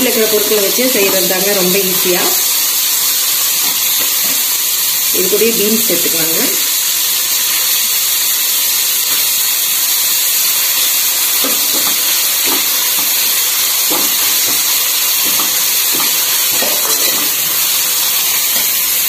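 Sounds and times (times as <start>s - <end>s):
vegetables sizzling in hot oil: 0.0s - 19.0s
steel spatula scraping: 11.4s - 18.9s.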